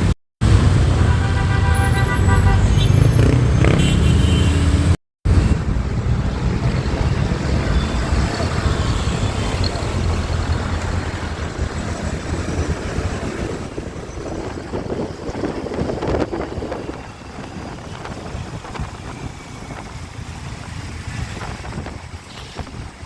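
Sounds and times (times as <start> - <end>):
motorcycle engine rumble: 0.0 - 23.0
surrounding traffic noise: 0.0 - 23.0
wind rushing on microphone: 5.3 - 23.0.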